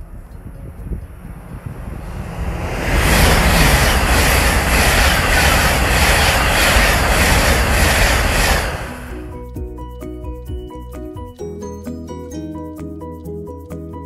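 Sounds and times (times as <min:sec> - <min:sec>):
express train passing: 0:00.0 - 0:09.7
plucked background music: 0:09.2 - 0:14.0.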